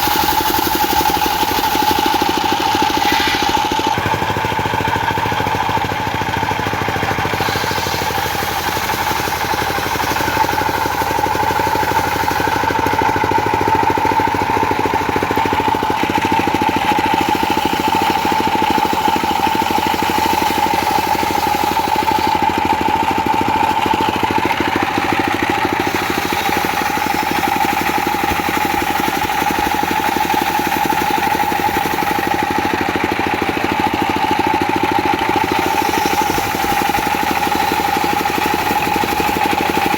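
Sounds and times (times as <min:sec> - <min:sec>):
circular saw high tone: 0:00.0 - 0:04.2, 0:07.2 - 0:14.8, 0:15.7 - 0:24.4, 0:25.7 - 0:32.7, 0:35.4 - 0:39.9
diesel engine running: 0:00.0 - 0:39.9.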